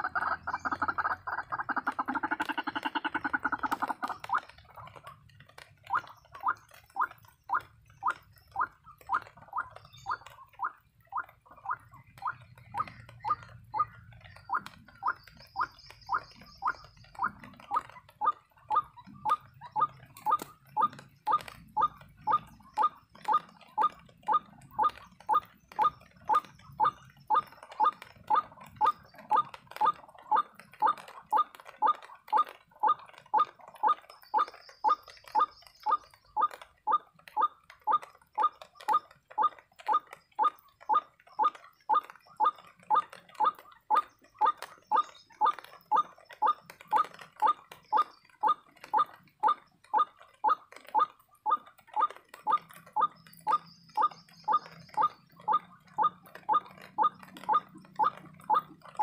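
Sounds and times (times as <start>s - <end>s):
waterhen call: 0.0s - 59.0s.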